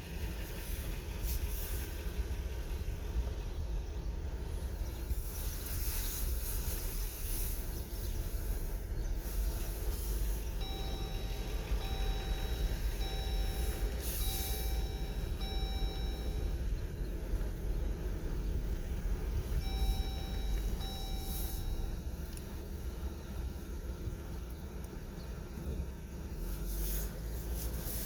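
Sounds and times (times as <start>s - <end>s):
heavy trucks idling: 0.0s - 28.0s
electronic beeper: 10.6s - 16.6s, 19.6s - 22.0s.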